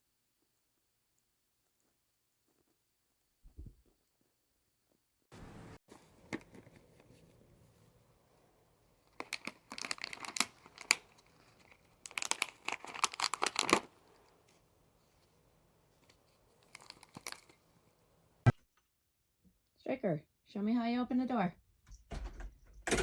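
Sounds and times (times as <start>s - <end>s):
crinkling and tearing: 9.0s - 14.6s, 15.9s - 17.7s.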